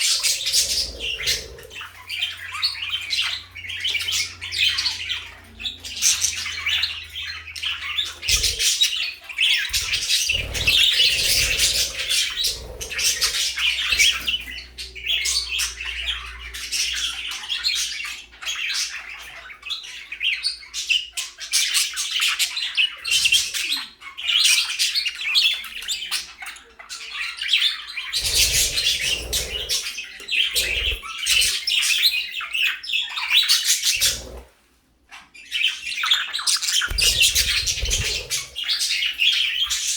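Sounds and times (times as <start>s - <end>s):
budgerigars chattering and chirping: 0.0s - 34.5s, 35.1s - 39.9s.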